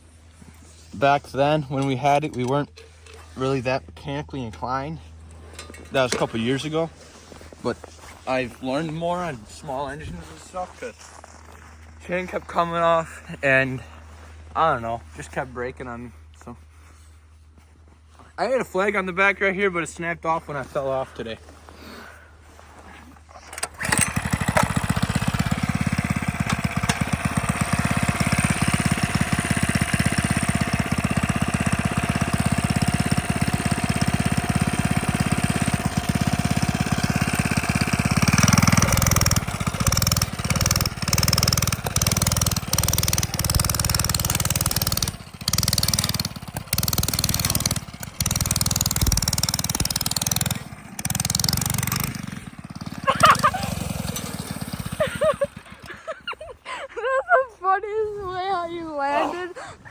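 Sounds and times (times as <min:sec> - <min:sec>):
small engine revving: 0:23.5 - 0:56.4.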